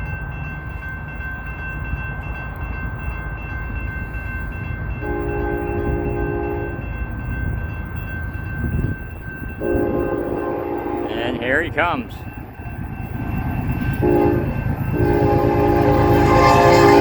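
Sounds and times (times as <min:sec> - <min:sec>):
crossing bells ringing: 0:00.0 - 0:17.0
locomotive air horn: 0:05.0 - 0:06.8, 0:09.6 - 0:11.5, 0:14.0 - 0:17.0.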